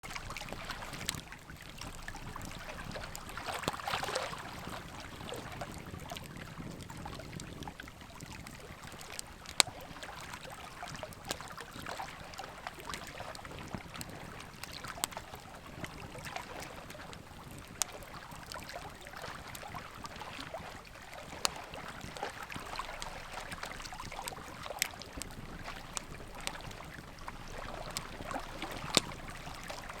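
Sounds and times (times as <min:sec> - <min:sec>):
wood fire crackling: 0:00.0 - 0:10.5, 0:20.8 - 0:30.0.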